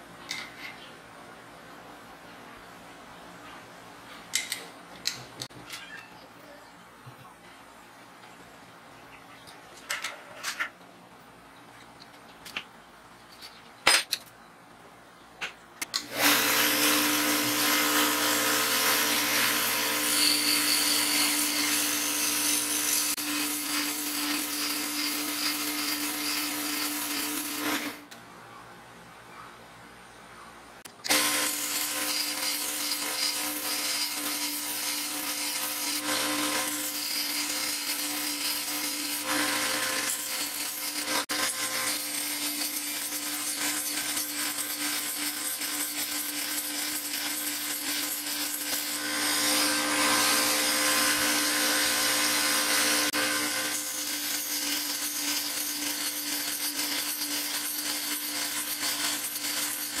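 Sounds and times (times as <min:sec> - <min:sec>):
belt sander grinding steel: 0:16.0 - 0:28.1, 0:31.0 - 1:00.0.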